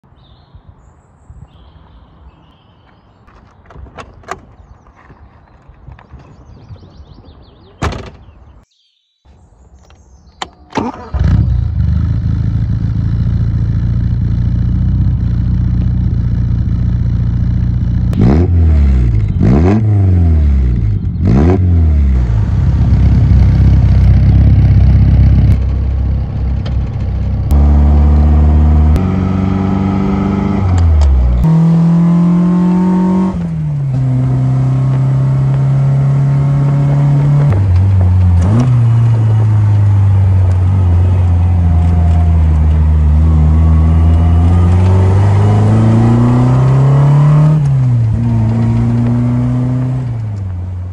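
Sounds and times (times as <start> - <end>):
car engine idling and revving: 10.8 - 50.9.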